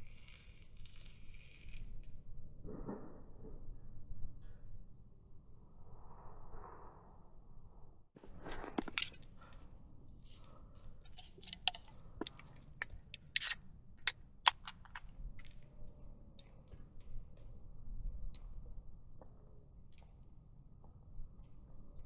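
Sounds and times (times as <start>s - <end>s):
sharp clicks and clinks: 11.0s - 13.6s, 14.5s - 15.0s.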